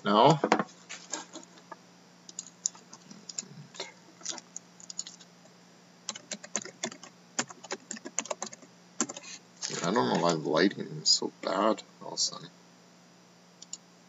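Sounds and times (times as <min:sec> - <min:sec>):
typing on a computer keyboard: 0:04.3 - 0:05.2, 0:06.1 - 0:09.3.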